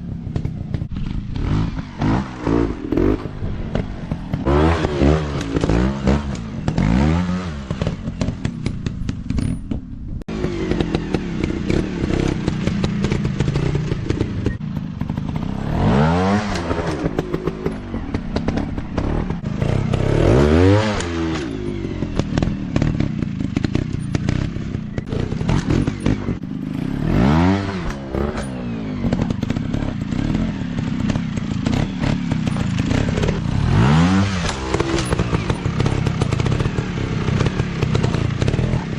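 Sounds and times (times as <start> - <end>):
dirt bike engines revving: 0.0 - 9.7, 10.3 - 38.9
rattling clatter: 7.7 - 10.0, 27.8 - 38.8.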